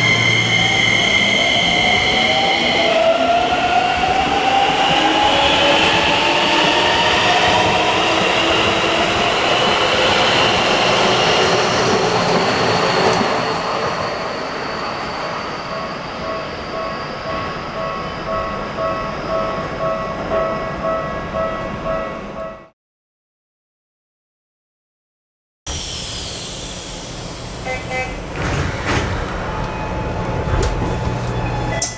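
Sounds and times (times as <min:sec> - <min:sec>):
electric train inverter whine: 0:25.7 - 0:31.9
wheel and rail noise: 0:27.0 - 0:31.9.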